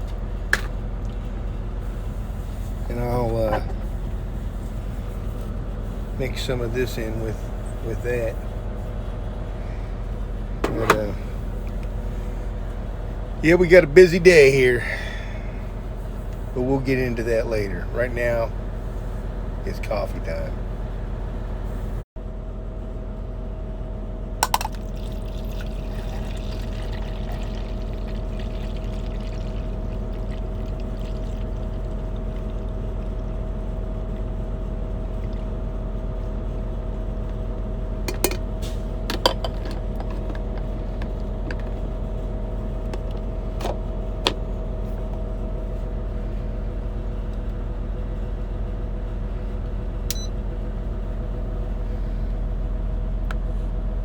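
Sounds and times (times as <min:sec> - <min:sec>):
steady low engine hum: 0:00.0 - 0:54.0
cup clicks and knocks: 0:24.4 - 0:25.1, 0:38.1 - 0:38.4, 0:39.1 - 0:41.7
liquid pouring into cup: 0:24.4 - 0:33.3.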